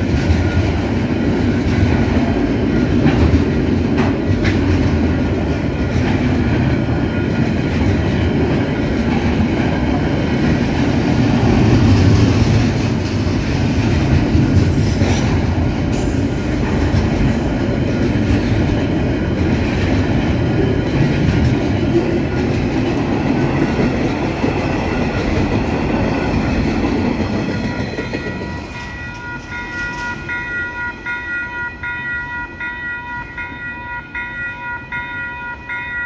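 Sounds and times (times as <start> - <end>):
freight train wheels clattering: 0.0 - 31.3
level crossing warning bells: 4.7 - 12.4, 15.8 - 36.0.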